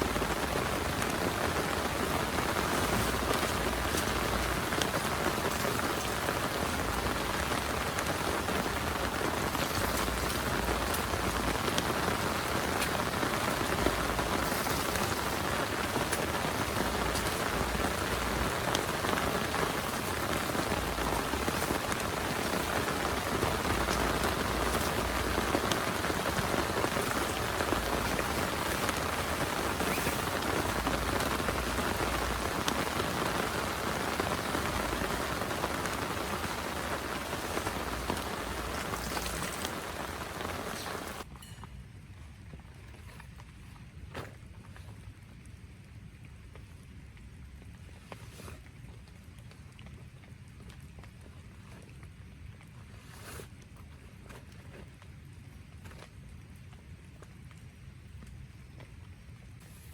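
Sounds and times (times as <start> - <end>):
heavy rain falling: 0.0 - 41.3
rain drops ticking: 0.0 - 41.7.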